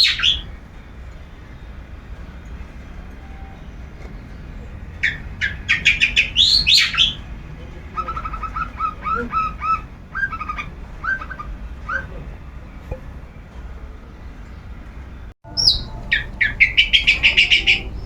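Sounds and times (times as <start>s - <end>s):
bird harsh rising calls: 0.0s - 0.5s, 5.0s - 12.8s, 15.5s - 18.0s
bird chattering notes: 7.8s - 12.3s, 15.5s - 18.0s.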